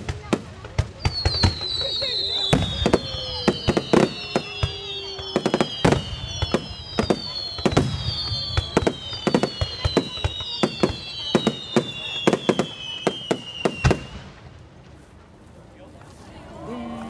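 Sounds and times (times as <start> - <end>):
fireworks bursting: 0.0 - 14.9
fireworks whistles falling in pitch: 0.8 - 14.4.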